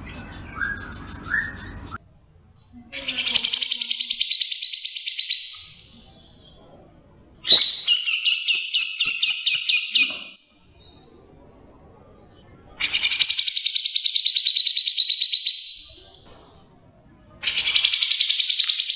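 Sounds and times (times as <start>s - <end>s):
songbird trilling: 0.0s - 2.0s, 3.0s - 6.6s, 7.4s - 10.9s, 12.8s - 16.2s, 17.4s - 18.9s.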